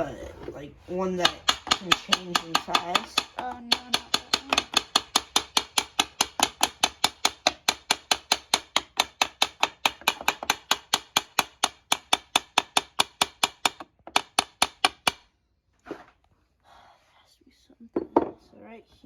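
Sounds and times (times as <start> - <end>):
rapid hammer taps: 1.2 - 15.3.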